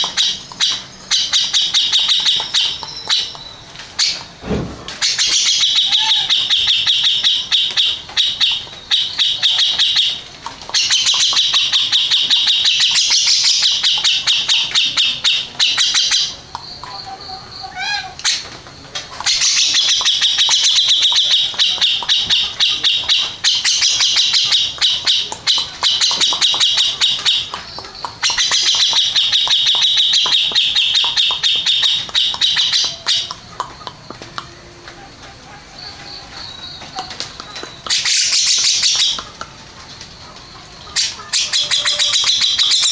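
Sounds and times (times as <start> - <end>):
bird chattering trills: 0.0 - 4.4, 5.0 - 42.9.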